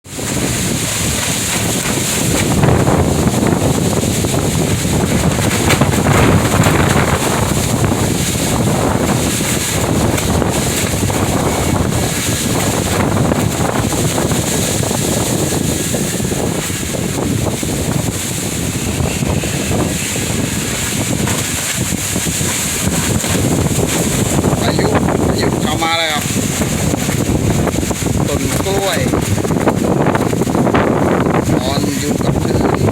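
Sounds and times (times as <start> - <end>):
strong wind gusting on microphone: 0.0 - 32.9.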